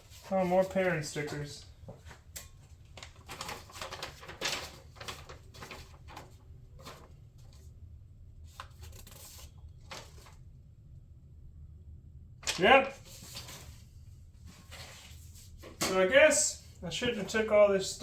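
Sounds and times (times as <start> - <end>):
packaging rustling: 2.8 - 7.6.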